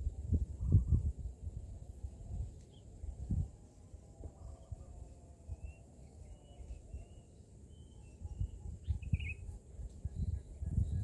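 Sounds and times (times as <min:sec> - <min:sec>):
low rumbling outdoor noise: 0:00.0 - 0:11.0
faint bird chirps: 0:02.6 - 0:11.0.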